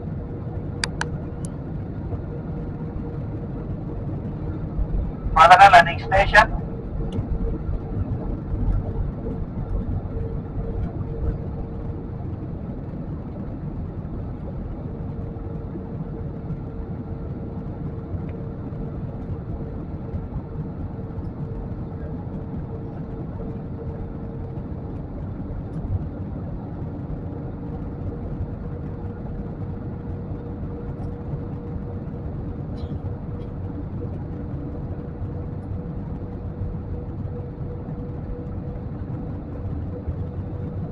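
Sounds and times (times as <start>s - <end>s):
jet cabin engine roar: 0.0s - 40.9s
steady hum tone: 0.0s - 40.9s.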